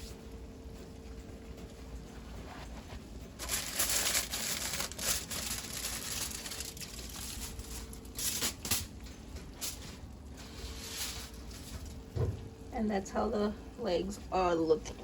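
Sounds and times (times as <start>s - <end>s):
aluminium foil crinkling: 3.3s - 12.1s.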